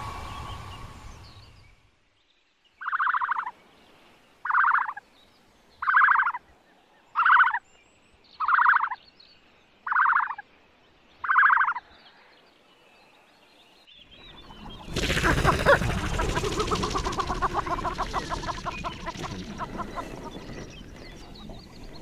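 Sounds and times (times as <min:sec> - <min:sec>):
buzzy bird call: 0:14.2 - 0:22.0.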